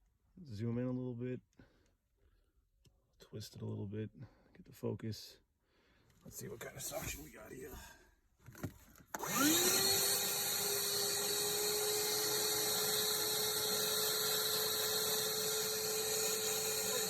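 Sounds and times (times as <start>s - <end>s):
shop vacuum running: 9.2s - 17.0s.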